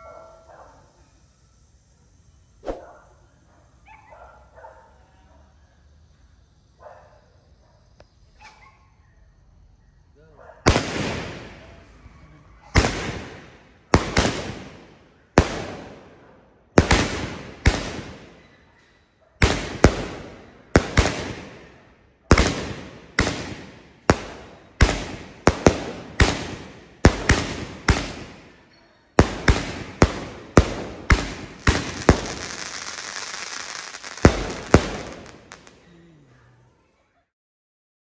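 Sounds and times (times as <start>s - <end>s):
firework bangs: 10.7s - 12.0s, 12.6s - 18.7s, 19.4s - 35.9s
firework crackle: 10.7s - 16.1s, 16.8s - 18.7s, 19.4s - 35.9s.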